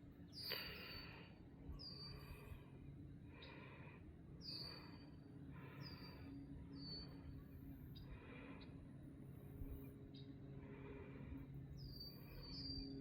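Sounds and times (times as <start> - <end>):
faint bird calling: 4.4 - 8.8.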